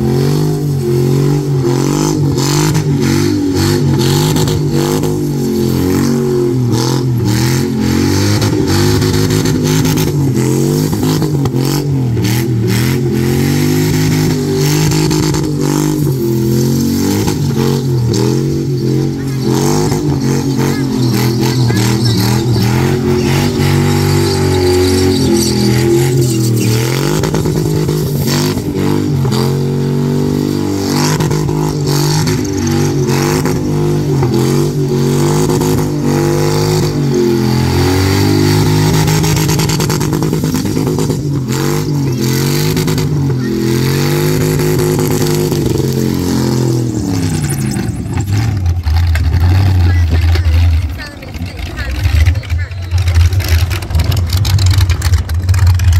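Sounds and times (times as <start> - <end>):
engine revving at high revs: 0.0 - 55.9
tyres spinning: 13.9 - 55.9.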